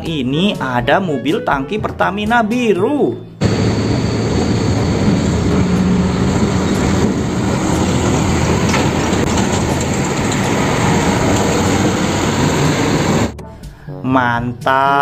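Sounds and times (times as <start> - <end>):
tyre and traffic noise: 3.4 - 13.3
trucks engine rumble: 3.4 - 13.4.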